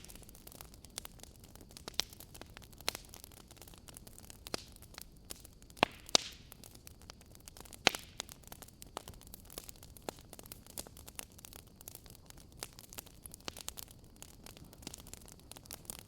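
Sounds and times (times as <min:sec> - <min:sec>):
faint steady hiss: 0:00.0 - 0:16.0
fireplace crackling and popping: 0:00.0 - 0:16.0.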